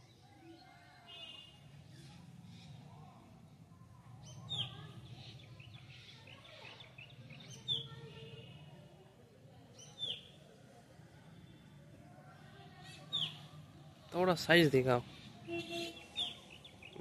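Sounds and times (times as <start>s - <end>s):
bird chirping: 15.2s - 17.0s.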